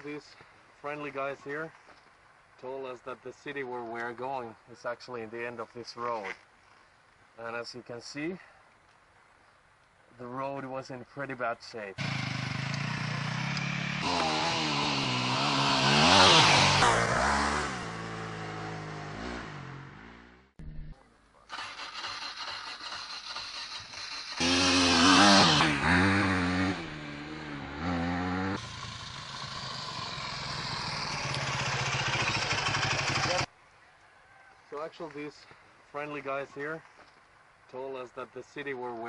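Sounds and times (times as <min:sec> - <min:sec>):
dirt bike engines revving: 0:12.0 - 0:20.4, 0:22.2 - 0:33.5.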